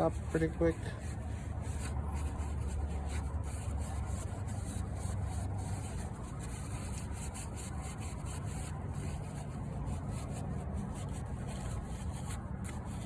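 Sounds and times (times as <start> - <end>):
cloth wiping a surface: 0.0 - 13.0.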